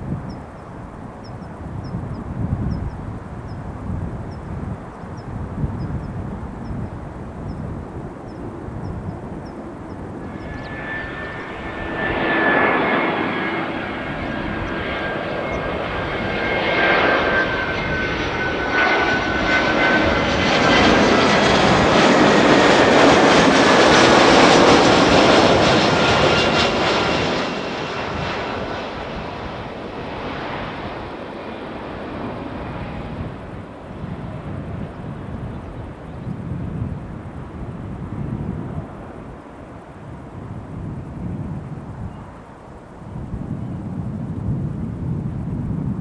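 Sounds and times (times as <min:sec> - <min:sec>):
high fan whine: 0:00.0 - 0:31.1
jet airliner engines passing: 0:00.0 - 0:46.0.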